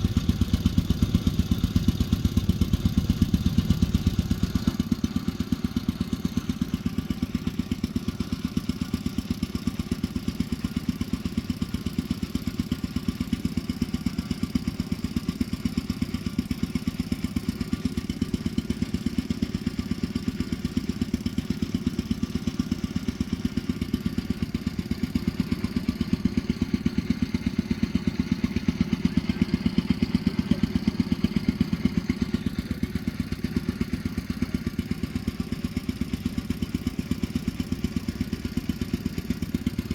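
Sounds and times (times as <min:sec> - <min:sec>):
engine running with pulsing beat: 0:00.0 - 0:39.9.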